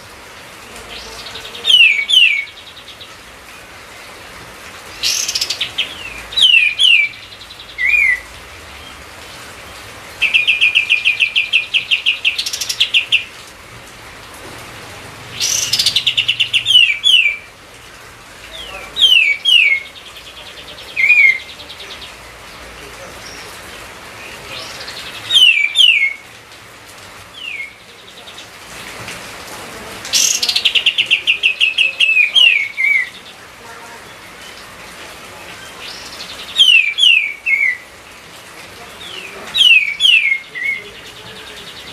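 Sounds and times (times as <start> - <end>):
bulbul singing trills and whistles: 0.9 - 3.2, 4.9 - 9.0, 10.2 - 13.3, 15.4 - 17.5, 18.6 - 22.2, 24.2 - 26.2, 27.4 - 28.4, 30.2 - 33.4, 35.5 - 37.8, 39.0 - 41.9.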